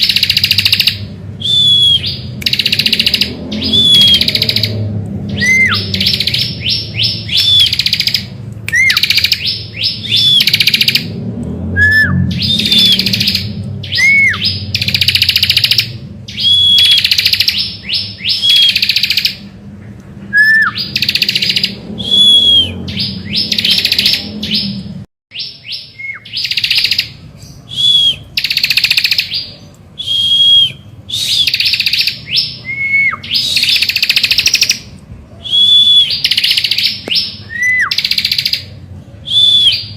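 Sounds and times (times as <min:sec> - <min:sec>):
bird singing buzzy trills: 0:00.0 - 0:19.6, 0:20.3 - 0:39.9
low hum: 0:19.3 - 0:25.1.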